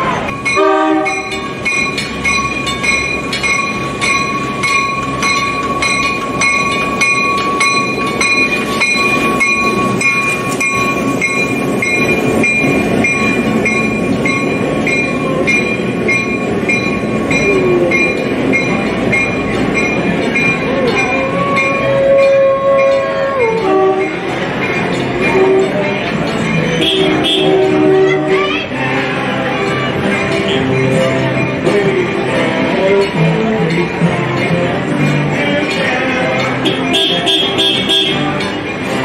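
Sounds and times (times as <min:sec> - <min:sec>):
train rumbling past: 0:00.0 - 0:39.0
warning bell ringing: 0:00.2 - 0:39.0.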